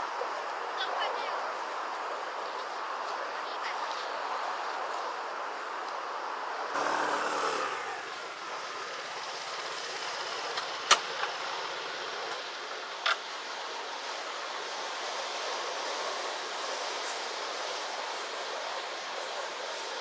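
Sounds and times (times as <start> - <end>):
wind: 0.0 - 20.0
vehicle driving past: 6.8 - 9.8.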